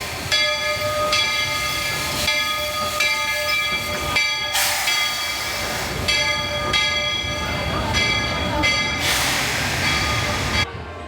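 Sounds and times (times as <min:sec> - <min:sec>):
locomotive bell ringing: 0:00.2 - 0:10.7
steam hiss: 0:04.5 - 0:06.0, 0:08.9 - 0:10.6.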